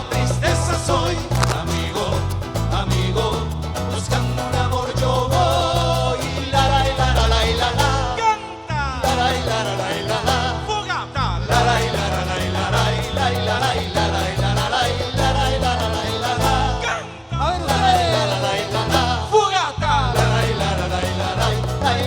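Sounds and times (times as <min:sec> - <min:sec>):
live latin band playing: 0:00.0 - 0:22.0.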